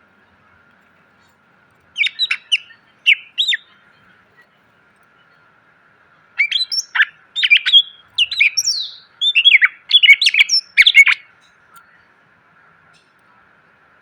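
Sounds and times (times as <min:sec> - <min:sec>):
bird singing whistled notes: 0:02.0 - 0:04.1, 0:06.4 - 0:12.0.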